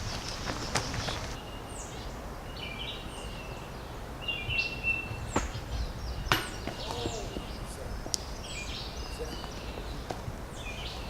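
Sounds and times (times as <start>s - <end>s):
birds chirping and whistling: 0.0s - 11.0s
outdoor background noise: 0.0s - 11.0s.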